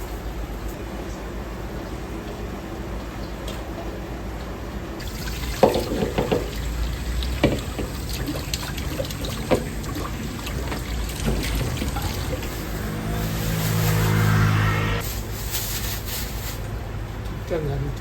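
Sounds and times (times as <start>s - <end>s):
tap water running into sink: 5.0s - 12.5s.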